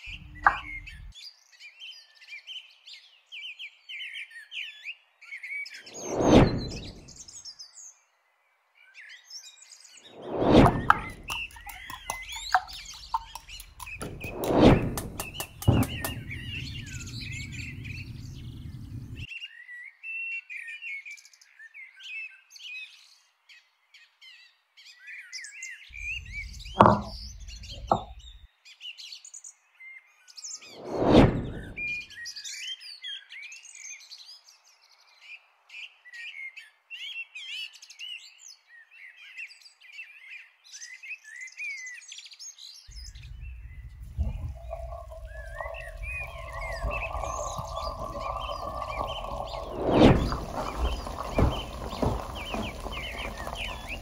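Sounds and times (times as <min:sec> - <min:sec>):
small birds chirping: 0:00.0 - 0:02.7, 0:09.0 - 0:19.3, 0:42.4 - 0:54.0.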